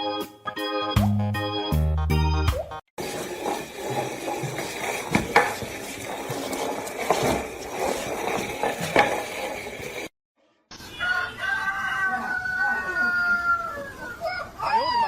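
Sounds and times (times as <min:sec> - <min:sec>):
household objects clattering: 0:03.0 - 0:10.1.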